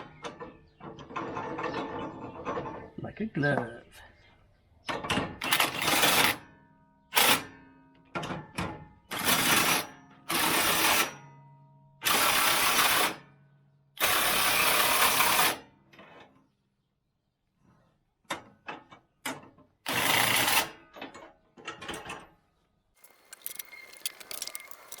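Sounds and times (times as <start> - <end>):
power tool tightening nuts: 5.4 - 6.4, 23.0 - 25.0.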